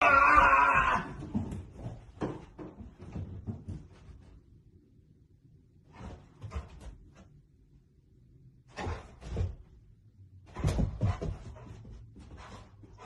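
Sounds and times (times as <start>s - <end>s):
thuds and rattling knocks: 1.2s - 4.3s, 10.5s - 13.0s.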